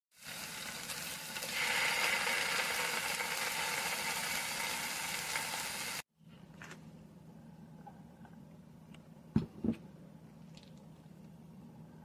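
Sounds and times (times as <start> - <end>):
food sizzling in a frying pan: 0.1 - 6.1.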